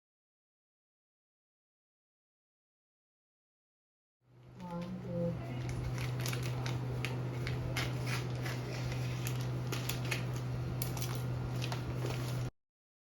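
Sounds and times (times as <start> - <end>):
packaging crinkling: 5.5 - 12.5.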